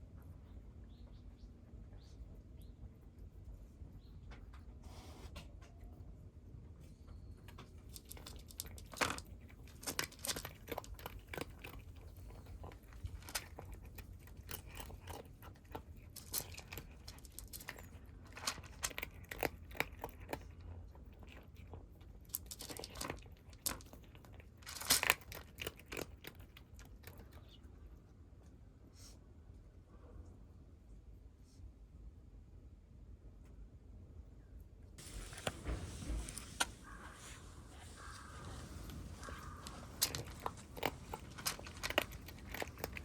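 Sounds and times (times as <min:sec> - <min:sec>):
kittens crunching dry food: 0:01.6 - 0:28.0, 0:35.0 - 0:43.0.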